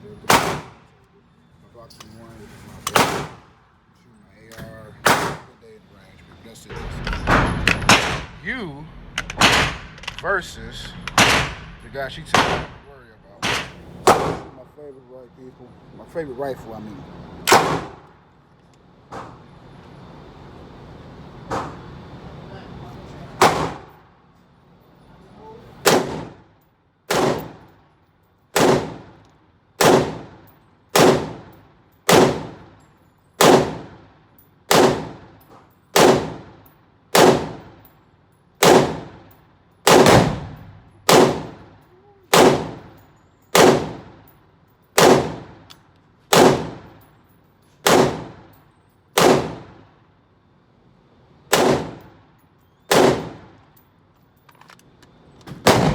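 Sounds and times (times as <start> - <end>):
single gunshots echoing: 0.3 - 0.8, 2.9 - 3.4, 5.0 - 5.5, 7.3 - 8.4, 9.2 - 14.6, 17.5 - 18.0, 23.4 - 23.9, 25.8 - 26.4, 27.1 - 27.6, 39.9 - 41.6, 43.6 - 44.0, 45.0 - 45.5, 47.9 - 48.4, 55.6 - 55.9.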